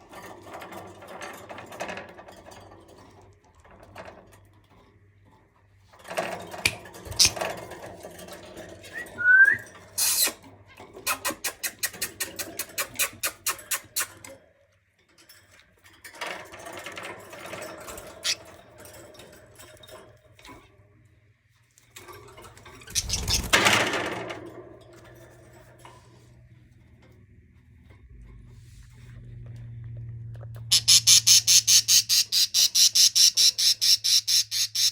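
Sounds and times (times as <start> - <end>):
cage rustling and rattling: 0.0 - 31.2
budgerigar chirp: 30.7 - 34.9.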